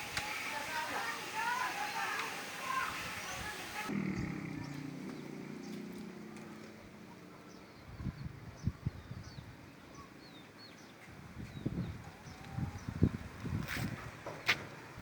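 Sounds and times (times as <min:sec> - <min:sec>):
small birds chirping: 0:00.2 - 0:13.6
wind buffeting microphone: 0:01.2 - 0:05.2, 0:07.6 - 0:10.1, 0:11.0 - 0:15.0.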